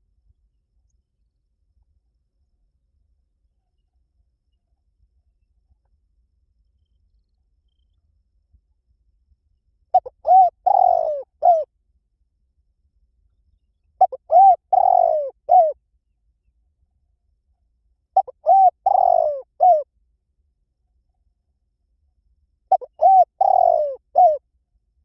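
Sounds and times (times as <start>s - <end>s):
dove cooing: 10.0s - 11.7s, 14.0s - 15.8s, 18.2s - 19.9s, 22.7s - 24.4s.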